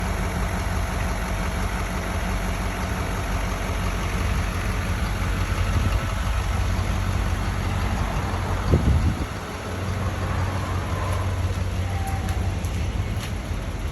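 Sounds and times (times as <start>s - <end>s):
truck engine idling: 0.0s - 13.9s.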